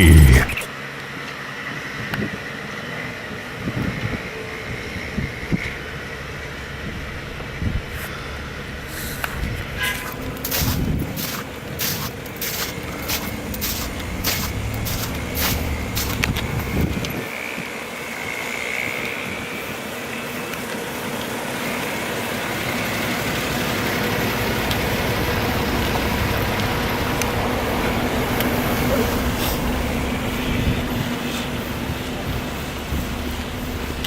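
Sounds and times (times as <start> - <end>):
vehicle engine rumbling: 7.0 - 17.2, 22.8 - 34.0.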